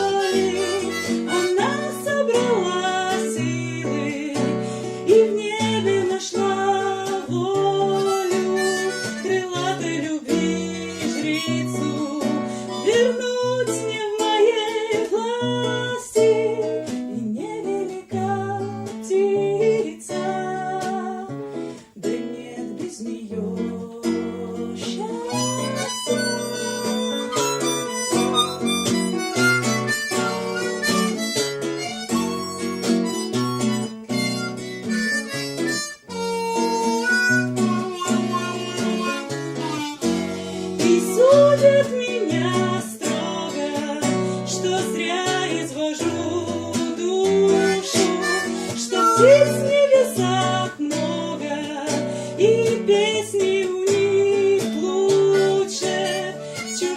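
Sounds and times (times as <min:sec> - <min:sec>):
harmonica melody: 0:00.0 - 0:05.4, 0:06.4 - 0:13.9, 0:24.4 - 0:45.4, 0:46.0 - 0:50.8, 0:53.9 - 0:56.9
strummed guitar: 0:00.0 - 0:56.9.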